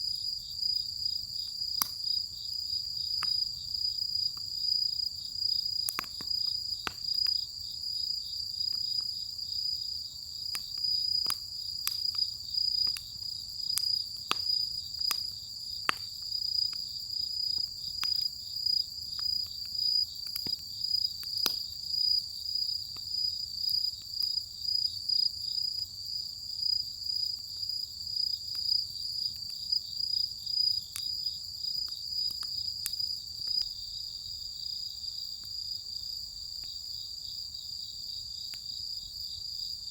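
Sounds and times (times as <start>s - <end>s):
firewood crackling and popping: 1.2s - 4.6s, 5.3s - 24.4s, 28.4s - 33.8s.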